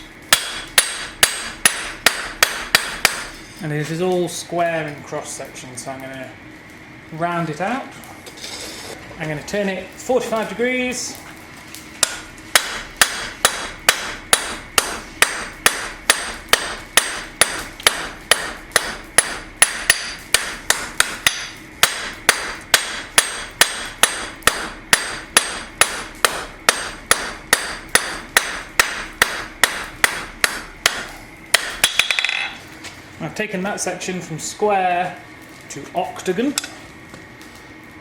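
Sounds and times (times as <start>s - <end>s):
hammer striking steel on anvil: 0.3s - 3.4s, 12.0s - 32.6s.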